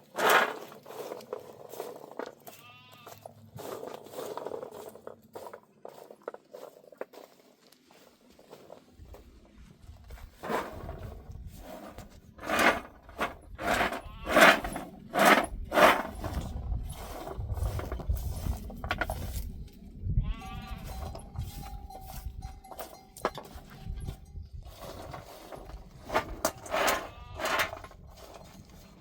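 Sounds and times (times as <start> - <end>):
sheep or goats bleating: 2.4 - 3.3, 13.9 - 14.6, 20.2 - 21.1, 27.1 - 27.6.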